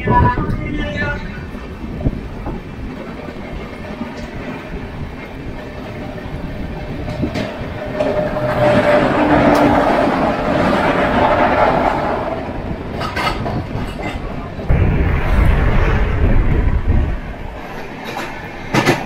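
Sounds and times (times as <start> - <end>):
passing electric locomotive: 0.0 - 19.0
wheel clacks over rail joints: 2.4 - 14.7
rush of wheels and air: 6.2 - 19.0.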